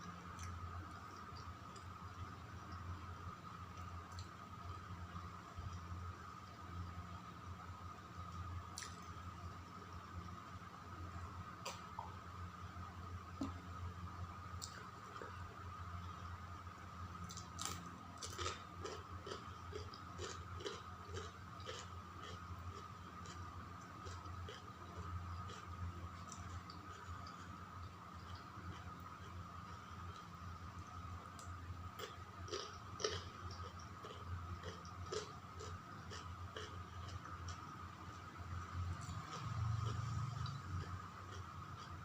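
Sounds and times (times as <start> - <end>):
faint steady hum: 0.0 - 42.0
person chewing food: 17.3 - 27.6, 31.4 - 37.7, 39.0 - 42.0.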